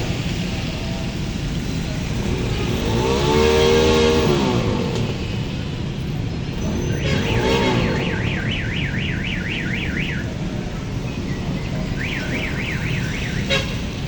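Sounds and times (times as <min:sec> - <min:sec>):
road traffic rumble: 0:00.0 - 0:14.0
electronic alarm warbling: 0:06.6 - 0:10.4, 0:11.8 - 0:13.7.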